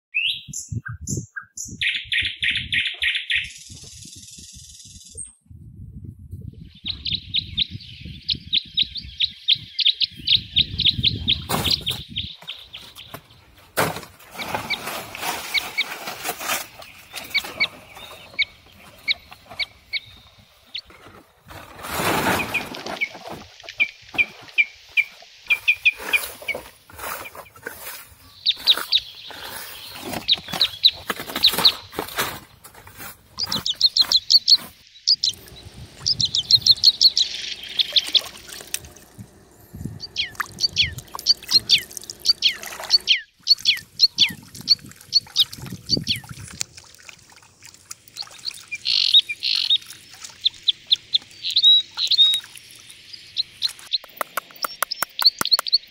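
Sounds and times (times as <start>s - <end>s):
birds chirping: 0.1s - 5.4s, 6.4s - 46.8s, 47.8s - 55.9s
sharp clicks and knocks: 54.0s - 55.9s.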